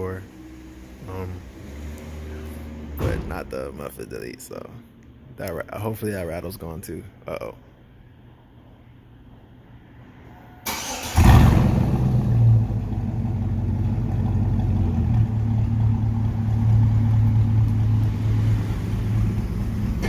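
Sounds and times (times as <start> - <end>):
loud engine idling: 12.8 - 20.0.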